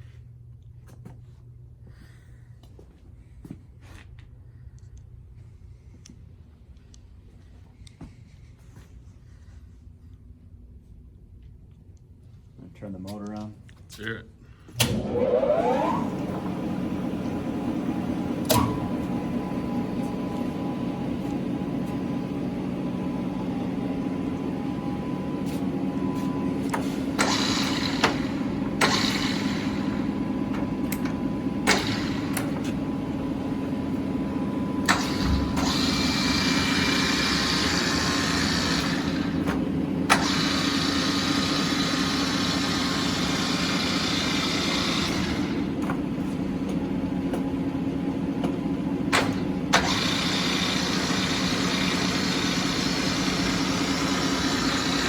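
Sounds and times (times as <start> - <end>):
lathe motor humming: 14.8 - 55.0.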